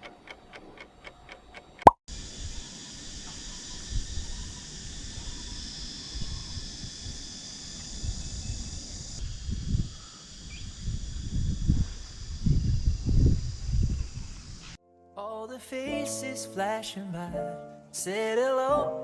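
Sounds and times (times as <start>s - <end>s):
night insects trilling: 2.1s - 14.8s
wind buffeting microphone: 3.9s - 14.8s.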